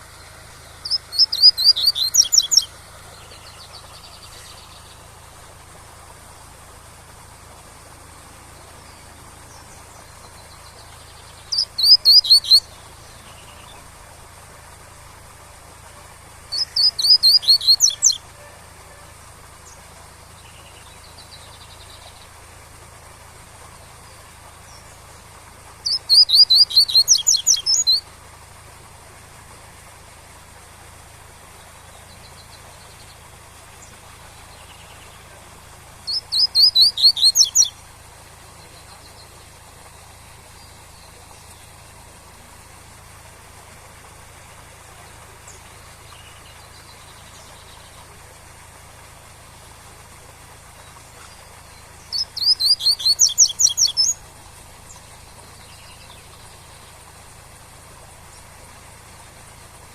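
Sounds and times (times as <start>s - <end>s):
bird singing rapid high notes: 0.8s - 5.0s, 9.4s - 13.8s, 16.5s - 18.5s, 25.8s - 28.0s, 36.0s - 37.8s, 52.0s - 54.2s.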